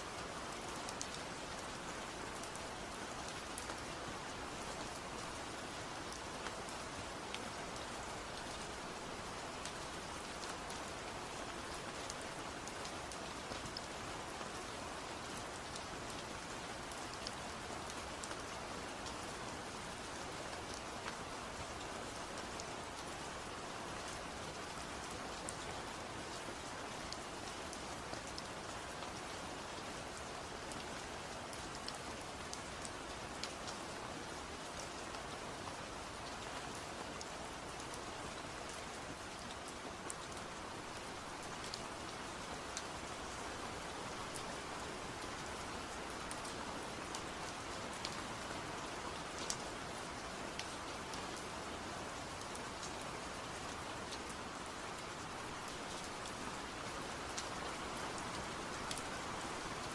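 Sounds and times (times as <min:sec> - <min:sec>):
steady rain hiss: 0:00.0 - 0:59.9
ticks of single raindrops: 0:36.2 - 0:51.5, 0:54.1 - 0:59.9.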